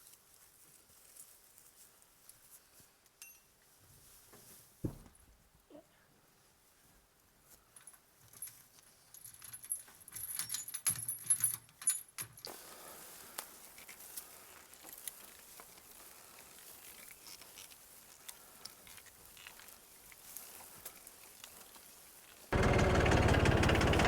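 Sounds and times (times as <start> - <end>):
faint hiss: 12.5 - 14.6.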